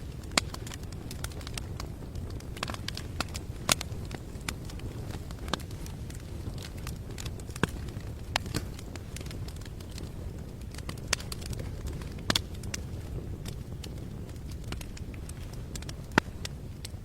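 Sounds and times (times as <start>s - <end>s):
low background rumble: 0.0s - 17.0s
sharp clicks and crackles: 0.0s - 17.0s.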